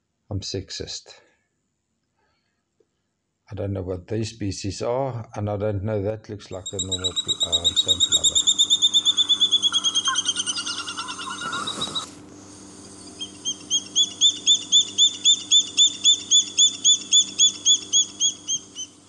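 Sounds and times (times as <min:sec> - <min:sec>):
bird whistling calls: 0:06.6 - 0:12.2, 0:12.9 - 0:19.0.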